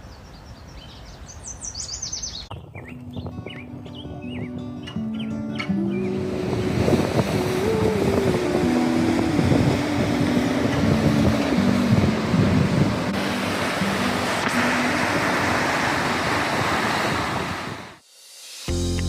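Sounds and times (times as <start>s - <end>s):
creek rushing and splashing: 6.0s - 18.0s.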